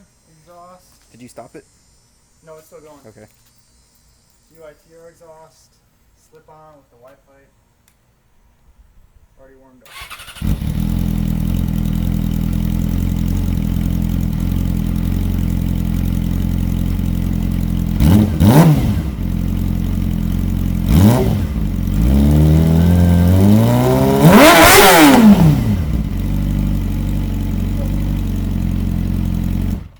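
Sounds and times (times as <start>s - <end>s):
motorcycle engine idling and revving: 9.9s - 29.9s.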